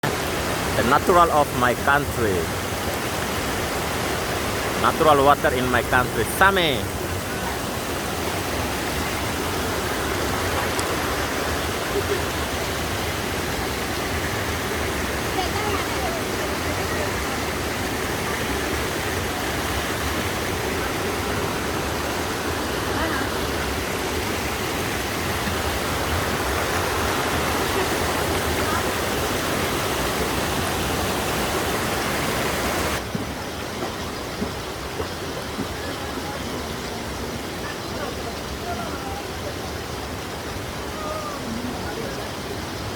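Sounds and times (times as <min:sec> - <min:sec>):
spring water running: 0:00.0 - 0:38.9.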